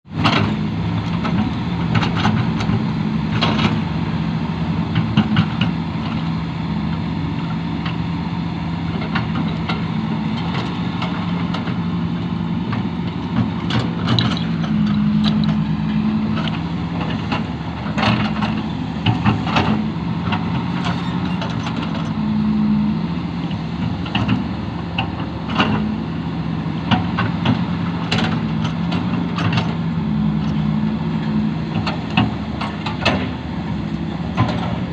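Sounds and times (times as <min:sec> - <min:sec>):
excavator diesel engine running: 0:00.1 - 0:34.9
sharp clanks and knocks: 0:12.7 - 0:15.7, 0:16.4 - 0:22.2, 0:23.8 - 0:25.9, 0:26.8 - 0:29.8, 0:31.7 - 0:33.5, 0:34.3 - 0:34.9.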